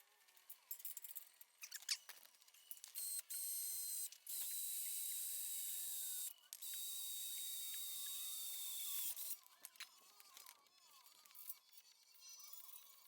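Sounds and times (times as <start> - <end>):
cordless drill boring through steel: 3.0 - 9.3.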